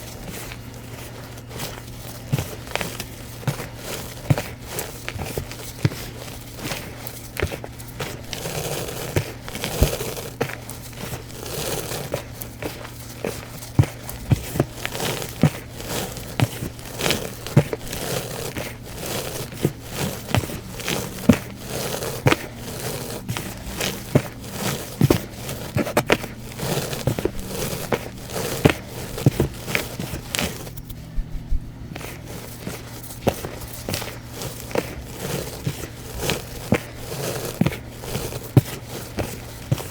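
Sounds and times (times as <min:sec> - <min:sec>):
faint steady hum: 0:00.0 - 0:39.9
powder blocks crunching by hand: 0:00.0 - 0:39.9.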